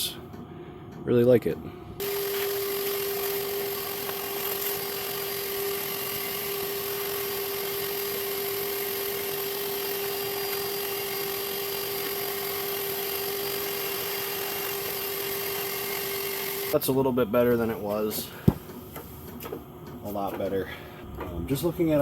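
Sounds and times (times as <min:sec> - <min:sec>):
small electric tool whining: 0:02.0 - 0:16.8.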